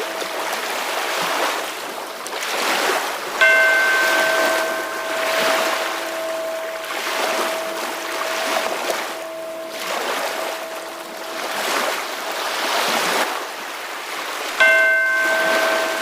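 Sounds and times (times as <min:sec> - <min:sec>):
bell ringing: 0:00.0 - 0:00.9, 0:03.4 - 0:12.9, 0:14.6 - 0:16.0
ocean waves washing: 0:00.0 - 0:16.0.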